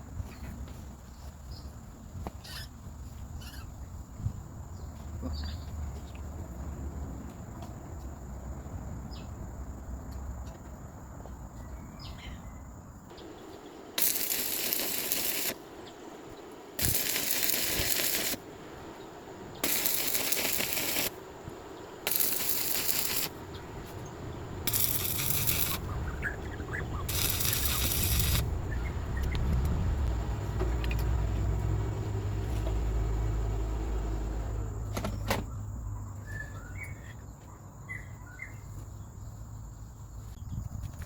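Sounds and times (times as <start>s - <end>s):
tool hissing and crackling: 13.1s - 30.2s
low rumble: 23.6s - 34.8s.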